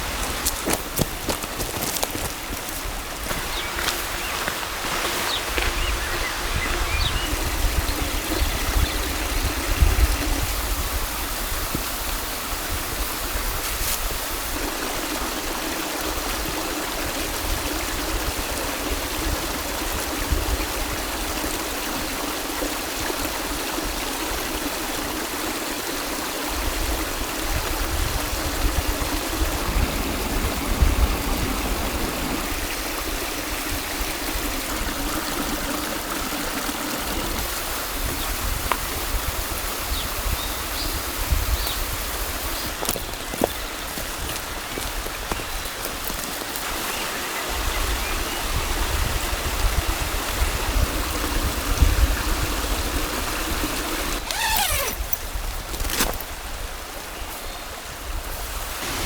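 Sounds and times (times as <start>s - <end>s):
stream rushing: 0.0s - 59.0s.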